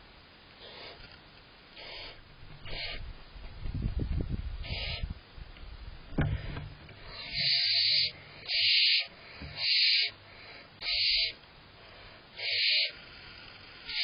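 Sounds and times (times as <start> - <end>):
owlets hissing calls: 0.6 - 1.1, 1.7 - 3.1, 4.6 - 5.2, 7.0 - 14.0.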